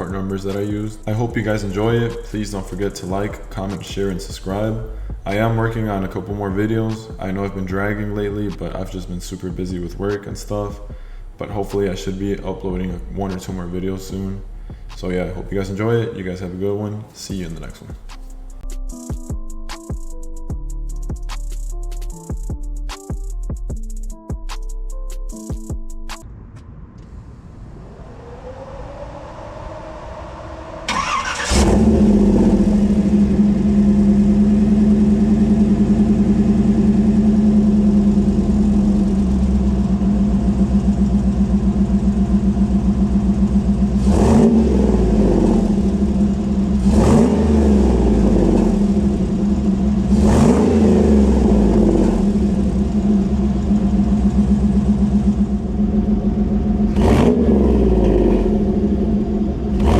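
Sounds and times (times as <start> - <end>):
engine idling: 0.0 - 15.3, 29.6 - 59.9
engine throttle blips: 0.0 - 15.8, 26.1 - 59.9
engine cranking and starting: 30.8 - 34.9.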